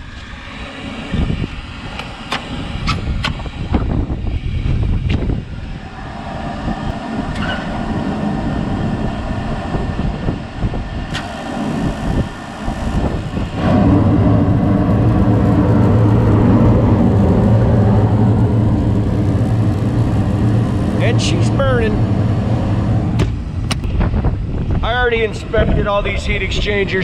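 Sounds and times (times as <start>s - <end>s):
hvac unit humming: 0.0s - 27.0s.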